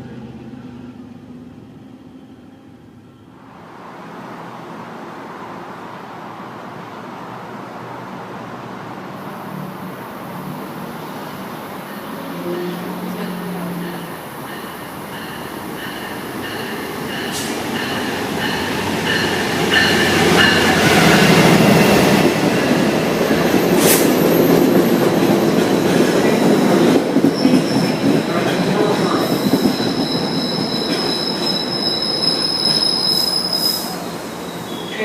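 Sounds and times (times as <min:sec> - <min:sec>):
train rumbling on rails: 0:00.0 - 0:35.0
high-pitched wheel squeal: 0:29.3 - 0:35.0.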